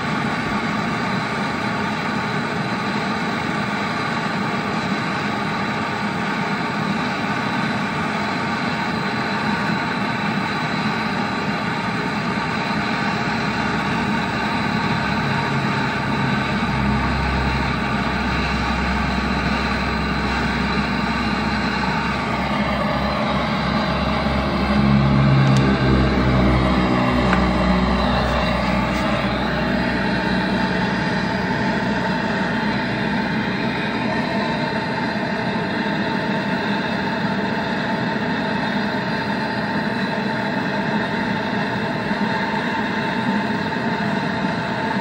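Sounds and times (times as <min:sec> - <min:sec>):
torch flame roaring: 0:11.9 - 0:37.1
deep rumble: 0:12.4 - 0:35.8.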